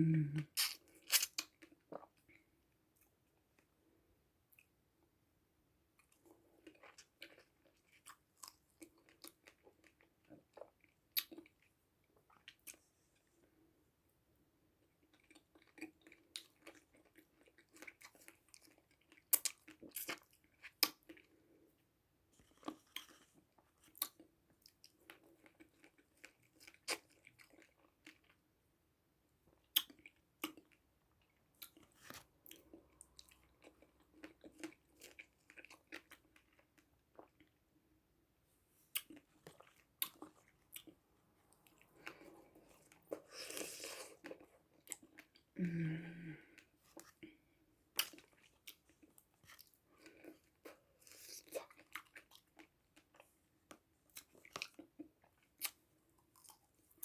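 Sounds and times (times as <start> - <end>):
person chewing crunchy food: 6.0 - 12.8, 15.0 - 21.6, 22.4 - 28.4, 29.6 - 37.6, 38.9 - 45.6, 46.6 - 57.0.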